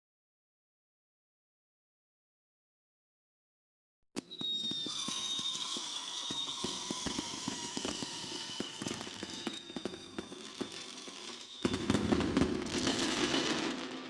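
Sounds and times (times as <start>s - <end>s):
fireworks crackling and popping: 4.2s - 14.0s.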